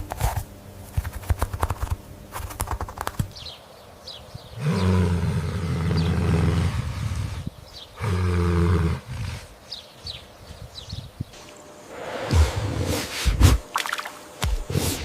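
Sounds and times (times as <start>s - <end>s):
animal low drawn-out calls: 4.6s - 9.6s.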